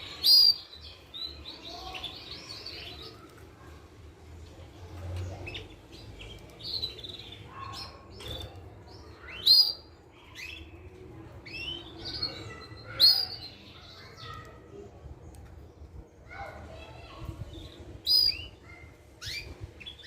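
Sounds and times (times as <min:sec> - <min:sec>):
canary chirping: 0:00.0 - 0:03.4, 0:05.2 - 0:14.6, 0:17.6 - 0:20.0.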